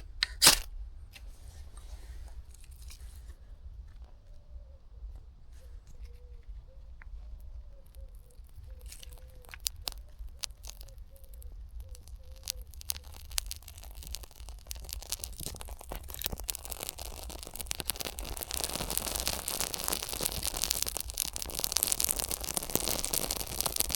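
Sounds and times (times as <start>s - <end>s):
fire crackling: 6.9s - 23.9s.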